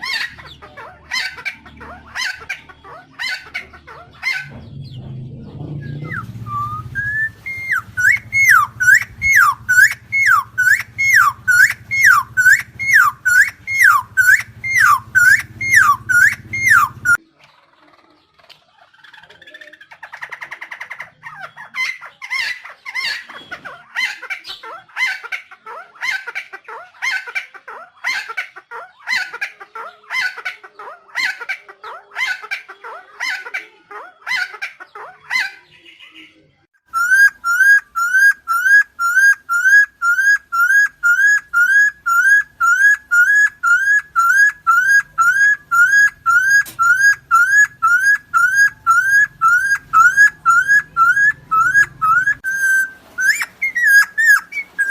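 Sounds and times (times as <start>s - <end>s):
bird harsh repeated calls: 0.0s - 5.1s, 5.8s - 17.2s, 19.3s - 54.9s
short rising whistled notes: 5.7s - 16.9s.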